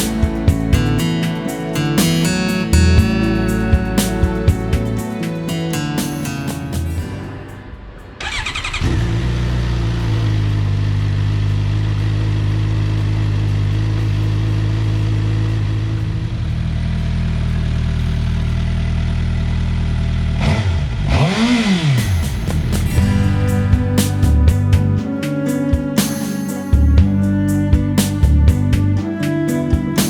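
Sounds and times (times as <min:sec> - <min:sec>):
engine throttle blips: 0:07.6 - 0:25.2
motorcycle engine idling: 0:08.2 - 0:21.1.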